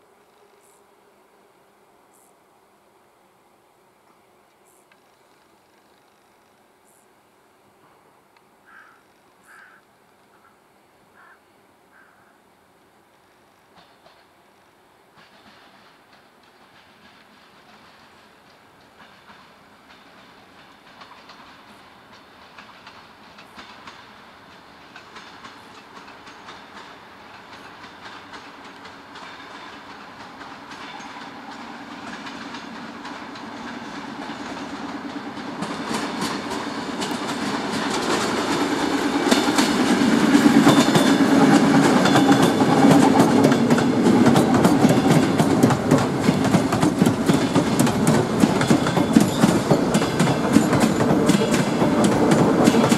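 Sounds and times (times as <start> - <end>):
train passing: 12.6 - 52.9
train wheels clattering on rail joints: 13.7 - 52.9.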